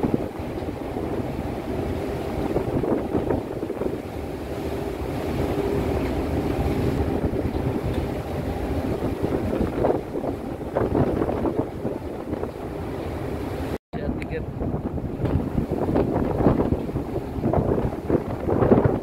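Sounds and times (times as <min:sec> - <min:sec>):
rush of waves: 0:00.0 - 0:19.0
wind buffeting microphone: 0:00.0 - 0:19.0.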